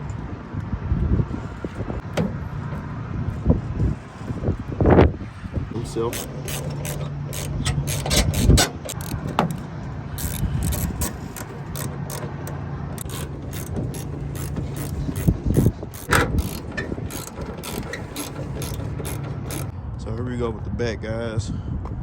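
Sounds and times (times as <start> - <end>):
hand tools clicking: 6.0 - 19.7.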